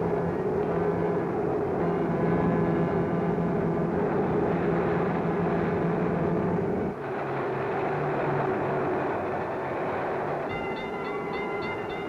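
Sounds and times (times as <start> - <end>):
train rumbling at speed: 0.0 - 12.0
steady held tones: 8.9 - 12.0.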